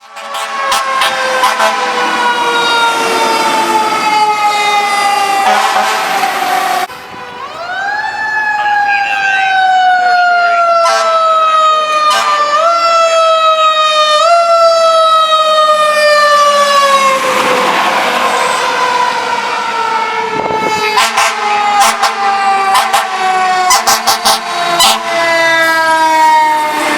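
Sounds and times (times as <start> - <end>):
wind-up siren wailing: 1.0 - 22.0.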